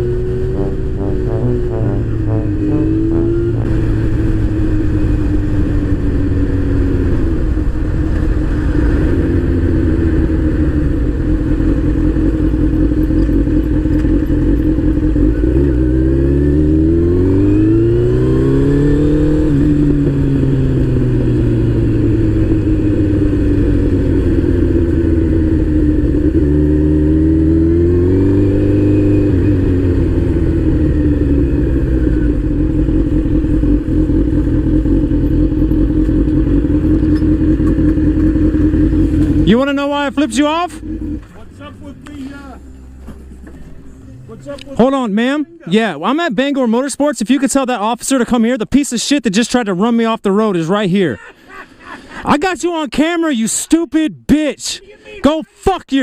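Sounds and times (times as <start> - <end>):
motorcycle engine accelerating: 0.0 - 44.4.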